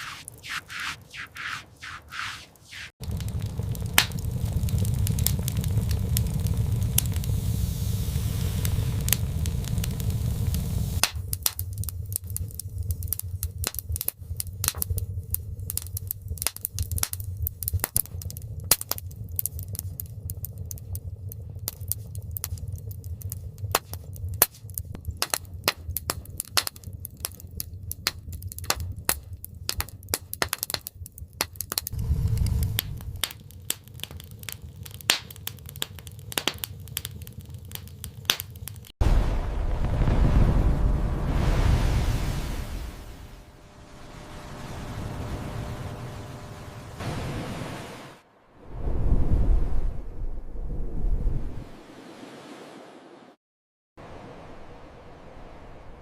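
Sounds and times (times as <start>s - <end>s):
sharp crackles and clicks: 0.0s - 46.7s
low rumble: 3.0s - 25.1s, 31.9s - 33.3s, 39.0s - 47.5s, 48.2s - 52.0s.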